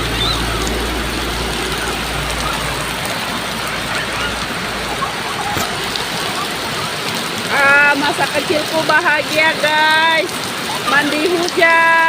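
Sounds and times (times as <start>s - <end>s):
faint children's voices: 0.0s - 7.6s
heavy rain pouring: 0.0s - 12.0s.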